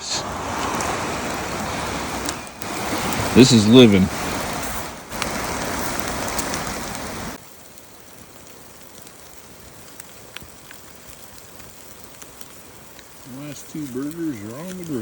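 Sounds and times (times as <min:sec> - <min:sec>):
creek water rushing: 0:00.0 - 0:07.4, 0:12.6 - 0:15.0.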